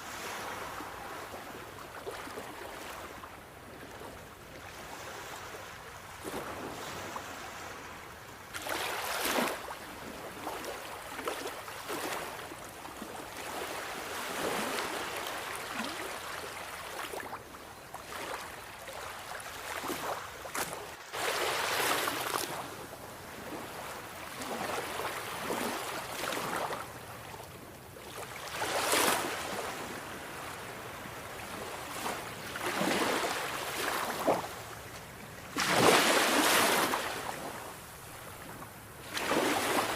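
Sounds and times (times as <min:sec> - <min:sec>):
sea waves breaking: 0:18.1 - 0:27.4, 0:28.1 - 0:34.8, 0:35.5 - 0:39.9.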